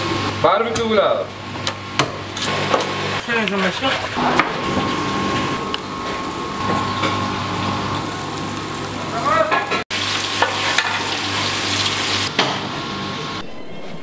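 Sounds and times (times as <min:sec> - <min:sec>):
food frying in hot oil: 0:04.6 - 0:12.8.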